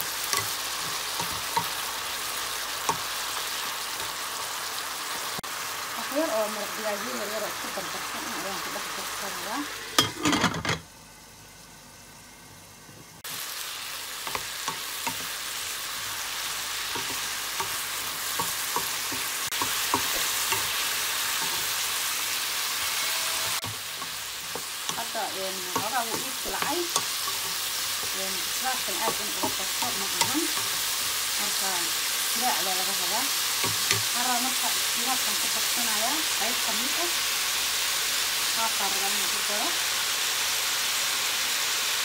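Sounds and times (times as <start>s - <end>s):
spoon stirring and scraping pan: 0.0s - 4.8s, 14.2s - 35.8s
broccoli sizzling in a pan: 0.0s - 10.3s, 10.9s - 42.0s.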